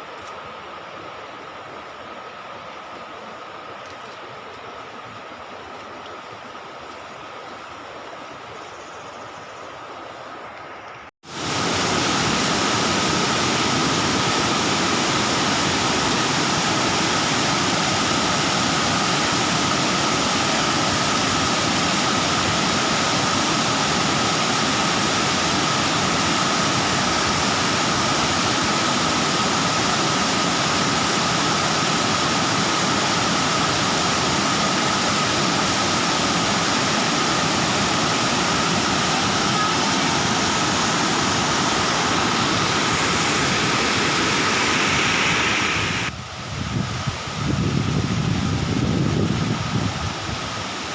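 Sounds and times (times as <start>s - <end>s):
waterfall rushing: 11.2s - 46.2s.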